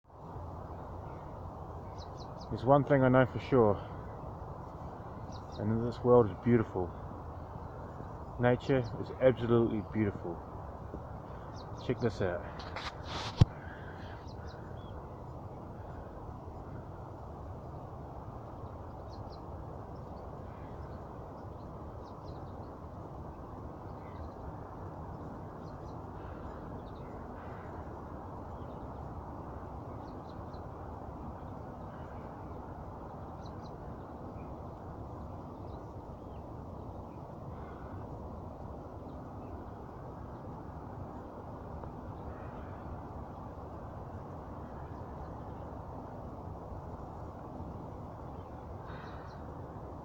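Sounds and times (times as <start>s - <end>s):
low rushing background noise: 0.0s - 50.0s
faint bird chirps: 11.1s - 40.6s, 48.0s - 49.8s.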